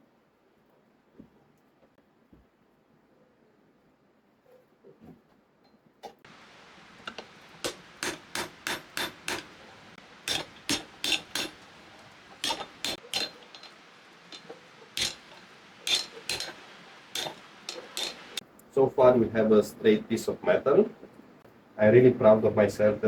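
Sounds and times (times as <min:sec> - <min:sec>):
hammer striking steel spring: 0:07.0 - 0:18.4.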